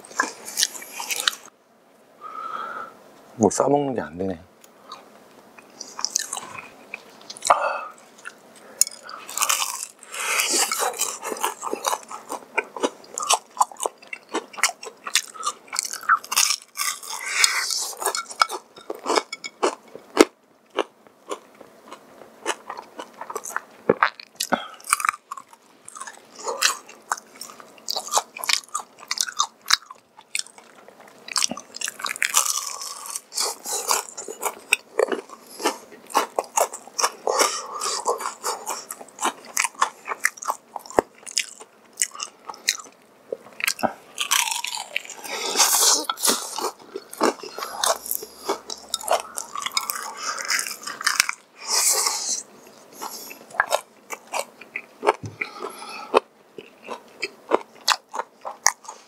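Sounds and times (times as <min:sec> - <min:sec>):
crunchy chewing: 0:00.1 - 0:01.5, 0:04.9 - 0:59.0.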